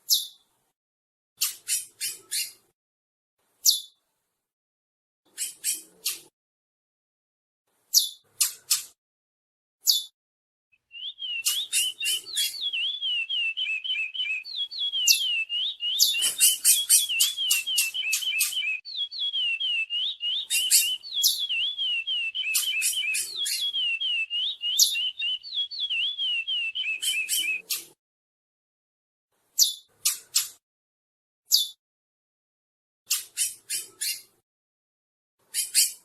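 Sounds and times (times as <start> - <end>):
finch singing whistled song: 0.1 - 0.4, 1.4 - 2.6, 3.6 - 4.0, 5.3 - 6.3, 7.9 - 8.8, 10.8 - 27.9, 29.6 - 30.6, 31.5 - 31.8, 33.1 - 34.3, 35.5 - 36.0
bird call: 10.8 - 27.8.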